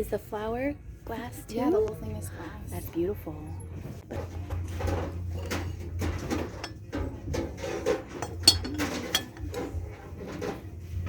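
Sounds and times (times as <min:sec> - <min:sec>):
glassware and dishes clinking: 0:04.1 - 0:10.6.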